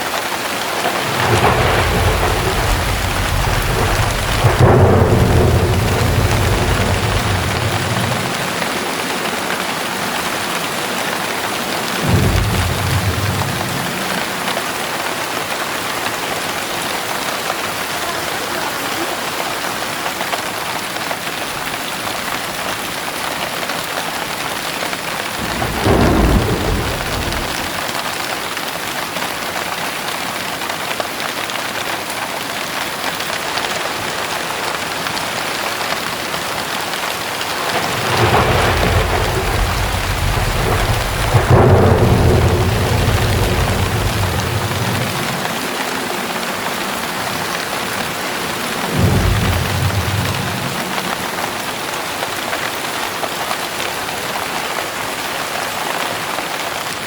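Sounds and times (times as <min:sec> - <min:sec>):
heavy rain pouring: 0:00.0 - 0:57.0
low rumbles of thunder: 0:00.8 - 0:18.0, 0:25.2 - 0:28.6, 0:35.0 - 0:52.1.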